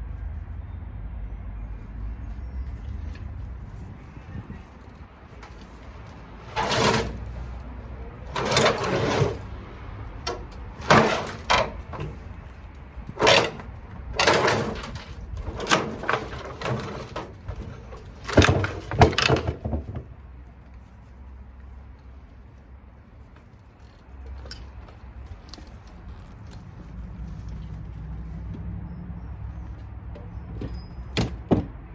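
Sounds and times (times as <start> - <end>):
metal scraping and clattering: 5.4 - 20.1.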